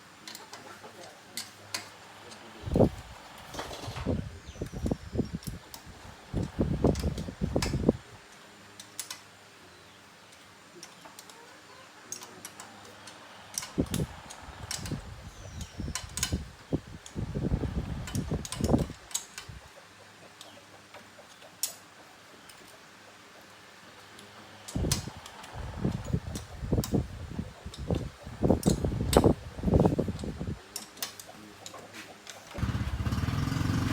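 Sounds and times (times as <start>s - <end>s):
tools and metal parts clinking: 8.8s - 9.3s, 12.1s - 17.2s, 27.6s - 32.6s.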